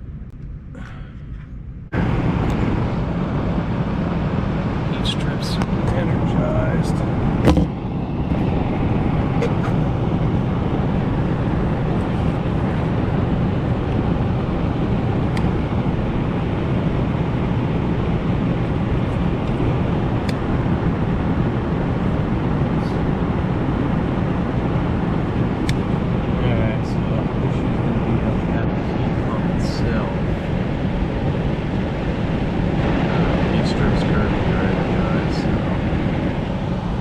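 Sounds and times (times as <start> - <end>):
air handler blower rushing: 0.8 - 37.0.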